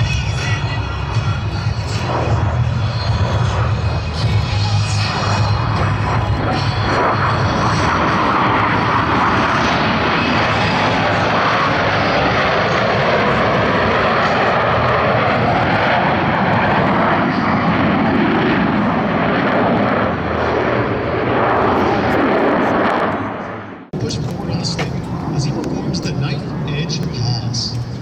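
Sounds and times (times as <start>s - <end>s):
jets roaring overhead: 0.0s - 28.0s.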